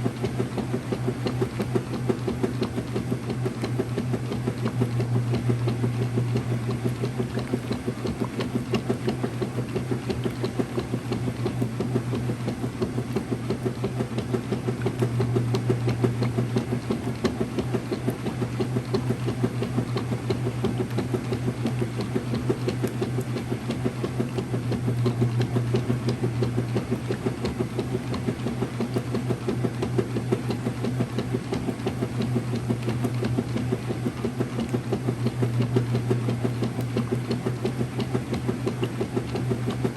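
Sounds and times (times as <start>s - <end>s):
washer churning rhythmically: 0.0s - 39.9s
washing machine motor hum: 0.0s - 39.9s.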